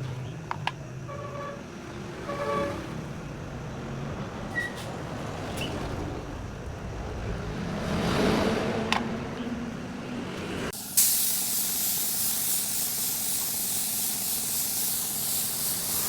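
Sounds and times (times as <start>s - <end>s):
traffic rumble: 0.0s - 12.5s
rising hiss: 10.8s - 16.0s.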